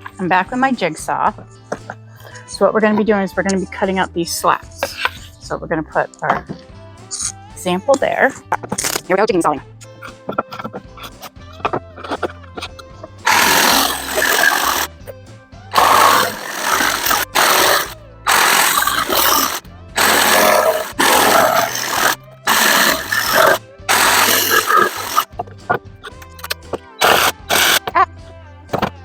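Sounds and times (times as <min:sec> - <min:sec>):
background music: 0:00.0 - 0:29.0
jigsaw cutting wood: 0:13.2 - 0:14.9, 0:15.8 - 0:25.3, 0:26.3 - 0:27.9.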